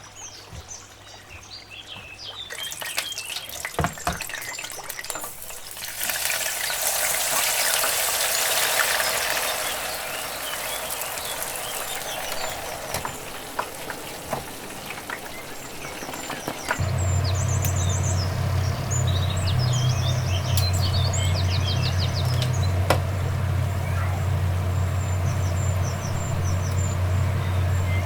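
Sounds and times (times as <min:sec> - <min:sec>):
chicken frying in hot oil: 0:02.2 - 0:28.0
faint bird chirps: 0:15.3 - 0:28.0.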